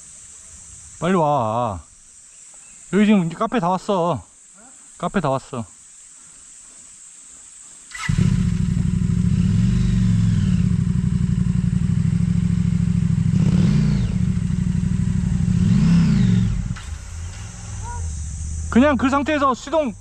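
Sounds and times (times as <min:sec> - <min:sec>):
motorcycle engine revving: 0:07.9 - 0:20.0
motorcycle engine starting: 0:07.9 - 0:20.0.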